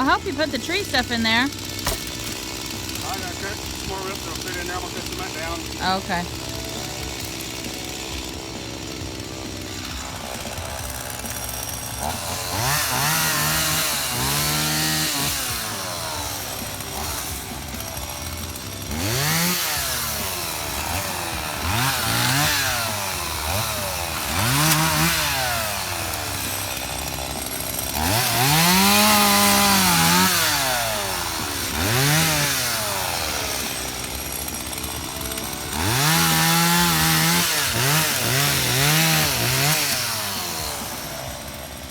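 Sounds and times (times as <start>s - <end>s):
chainsaw revving: 0.0s - 41.9s.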